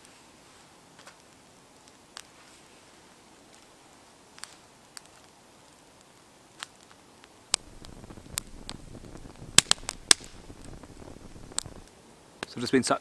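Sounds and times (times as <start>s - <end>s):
wood fire crackling: 0.0s - 12.9s
sharp pops and snaps: 6.0s - 12.6s.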